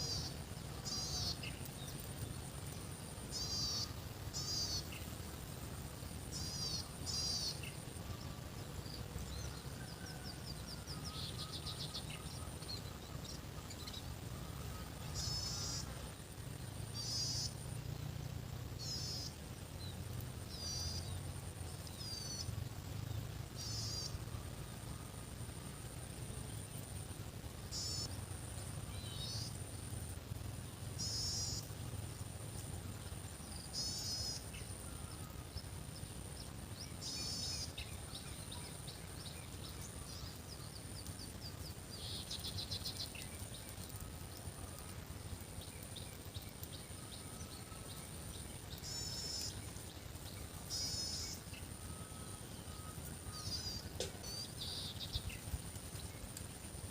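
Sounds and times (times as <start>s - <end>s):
birds chirping: 31.0s - 56.8s.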